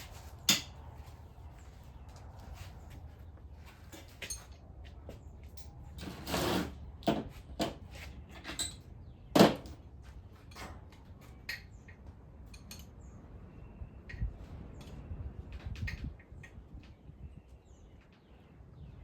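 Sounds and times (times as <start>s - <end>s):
metal scrape: 6.0s - 6.8s
metal parts clicking and knocking: 11.4s - 13.0s.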